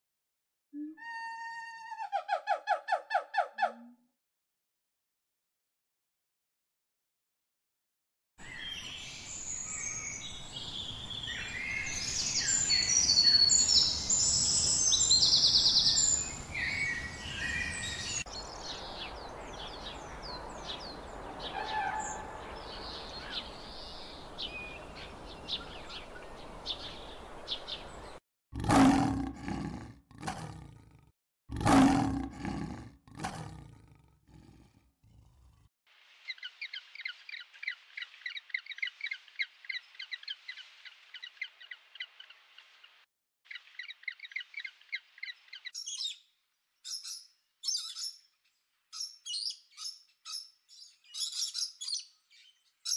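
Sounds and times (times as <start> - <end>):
bird calls and chirps: 8.4 - 28.2, 36.2 - 52.9
roar-like animal calls: 28.6 - 35.7.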